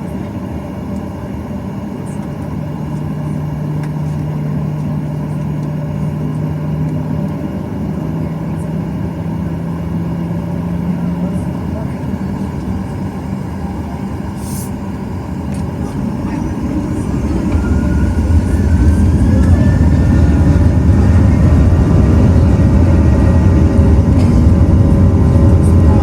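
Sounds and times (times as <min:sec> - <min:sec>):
jet engines spooling up: 0:11.5 - 0:26.0.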